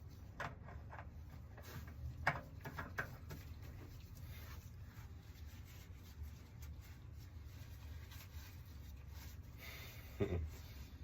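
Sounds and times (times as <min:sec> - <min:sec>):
low steady background rumble: 0:00.0 - 0:11.0.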